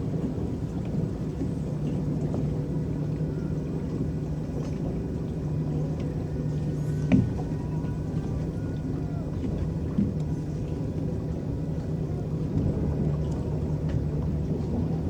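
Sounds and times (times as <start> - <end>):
electric boat hum: 0.0 - 15.0
water sloshing past hull: 0.0 - 15.0.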